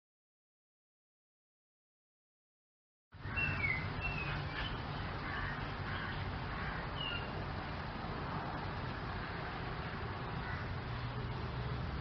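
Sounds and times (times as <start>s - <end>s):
steady hiss and low rumble: 3.2s - 12.0s.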